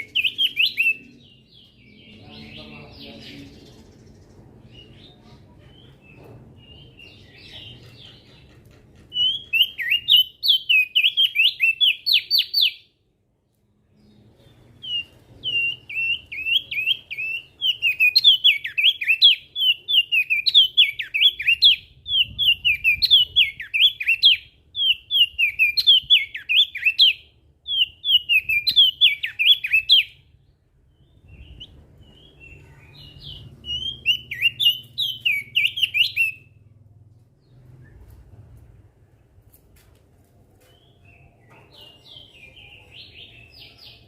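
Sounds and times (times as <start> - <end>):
bird singing high chirps: 0.0 - 5.2, 9.1 - 13.0, 13.9 - 36.7.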